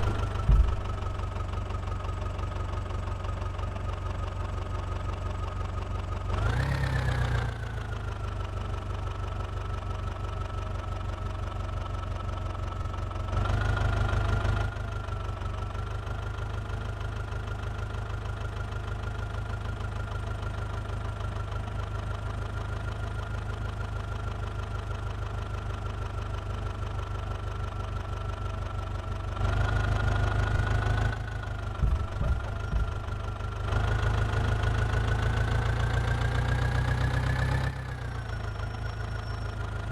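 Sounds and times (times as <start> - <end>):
short knocks: 0.0 - 1.2, 31.8 - 33.2
diesel engine idling and revving: 0.0 - 39.9.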